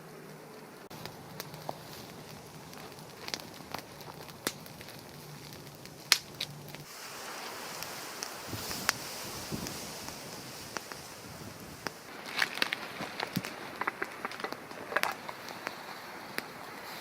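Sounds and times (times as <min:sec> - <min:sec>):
campfire crackling: 0:00.0 - 0:17.0
low hiss: 0:00.0 - 0:17.0
sharp pops of fire: 0:00.3 - 0:17.0.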